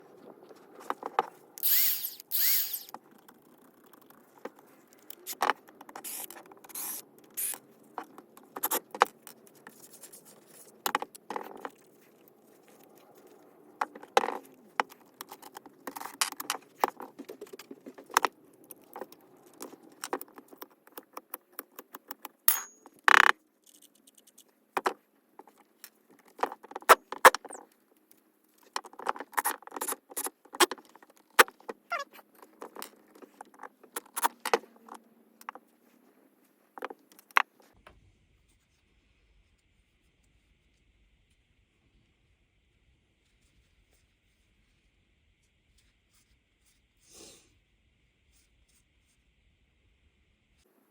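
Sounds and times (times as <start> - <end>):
tool parts clicking and knocking: 19.6 - 23.9.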